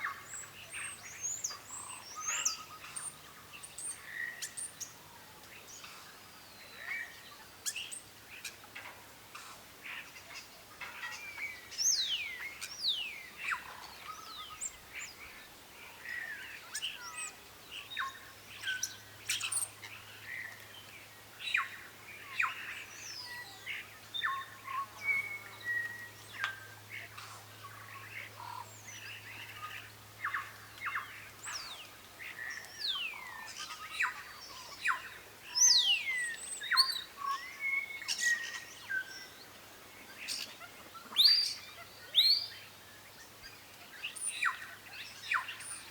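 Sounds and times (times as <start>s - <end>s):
bird chirps: 0.0s - 5.0s, 21.4s - 45.9s.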